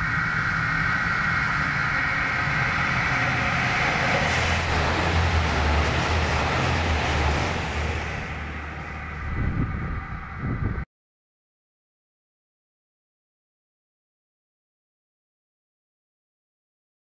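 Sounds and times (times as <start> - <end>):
train wheel clatter: 0.0 - 10.3
diesel engine rumble: 0.0 - 10.8
high whine of railcar: 0.0 - 10.9.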